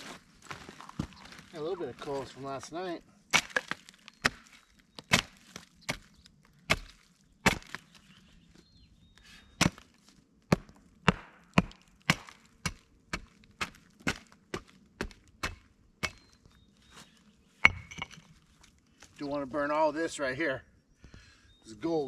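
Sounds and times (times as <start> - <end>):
blade striking wood: 10.5 - 16.4.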